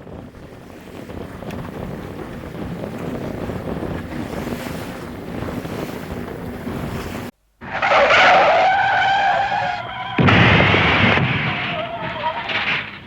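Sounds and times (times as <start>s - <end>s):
wind noise on microphone: 0.0s - 7.3s
water noise: 0.0s - 13.0s.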